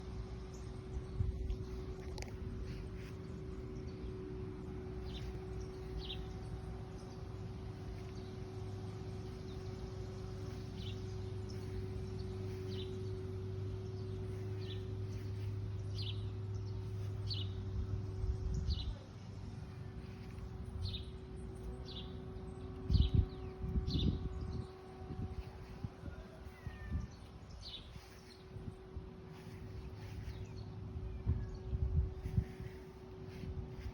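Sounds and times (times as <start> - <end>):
low hum and rumble: 0.0 - 33.9.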